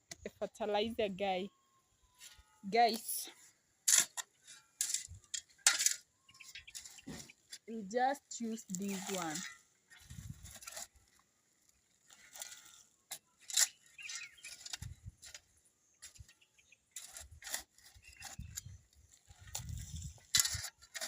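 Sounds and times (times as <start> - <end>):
compost scraping and rustling: 2.2 - 21.0
bird calling: 6.1 - 7.5, 13.5 - 14.8.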